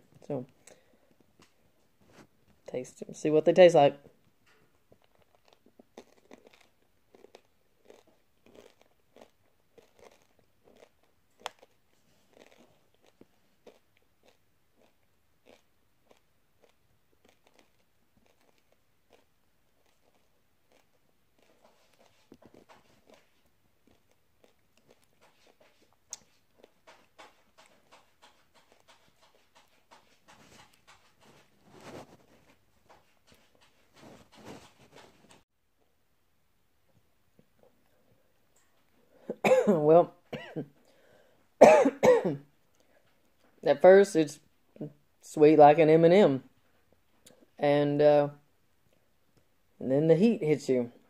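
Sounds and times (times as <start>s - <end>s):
chewing crunchy candy: 4.9s - 32.5s.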